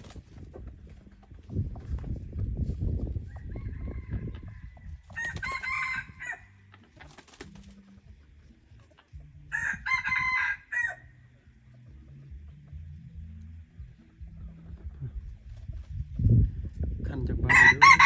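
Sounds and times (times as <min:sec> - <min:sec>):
rooster crowing: 0:03.3 - 0:06.5, 0:09.5 - 0:11.1, 0:17.5 - 0:18.0.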